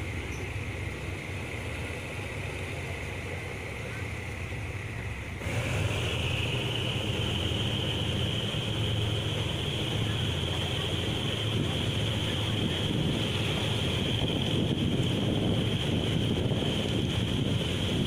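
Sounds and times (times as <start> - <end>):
train wheels rumbling on rail: 0.0 - 18.0
rushing hiss: 0.8 - 18.0.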